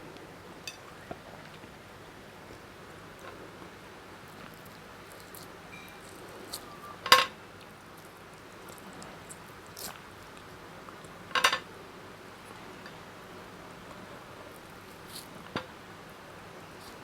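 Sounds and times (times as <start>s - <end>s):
mouth clicks and chewing: 4.3s - 6.9s, 7.6s - 11.2s.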